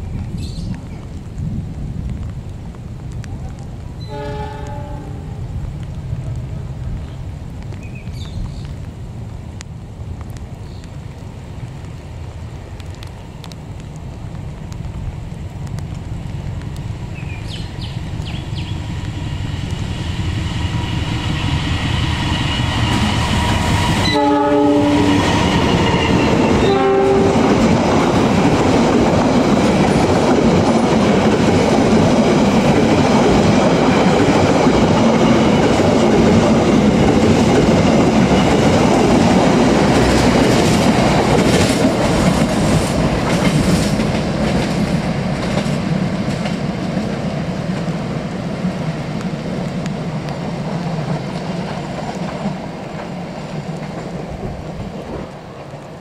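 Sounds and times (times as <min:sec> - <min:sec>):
train wheels rushing on rail: 0:00.0 - 0:56.0
train horn blasts: 0:04.0 - 0:05.4, 0:23.8 - 0:27.5.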